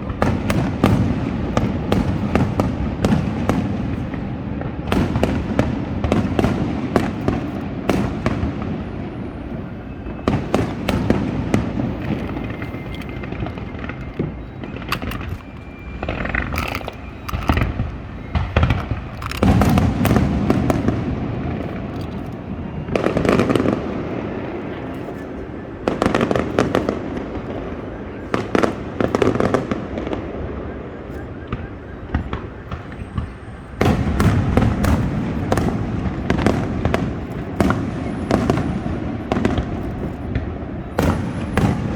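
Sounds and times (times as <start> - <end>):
fireworks booming volleys: 0.0 - 41.9
fireworks cracks and bangs: 0.0 - 41.9.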